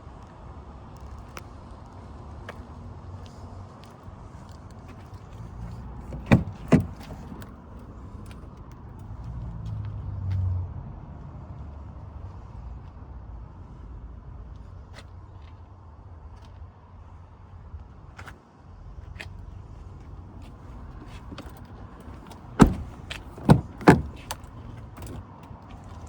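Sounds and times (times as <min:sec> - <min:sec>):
low vehicle rumble: 0:04.9 - 0:10.0, 0:19.5 - 0:26.0.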